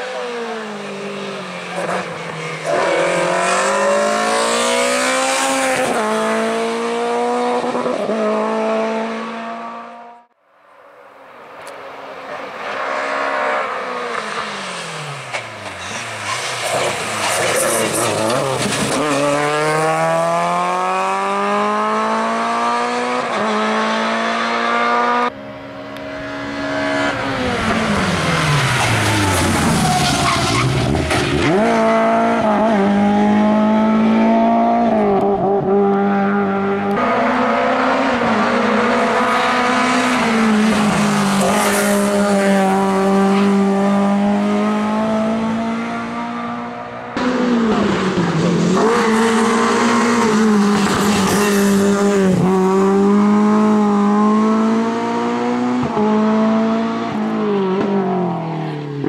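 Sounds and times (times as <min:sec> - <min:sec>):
rally car engine revving: 0:00.0 - 0:10.3, 0:12.3 - 0:59.0.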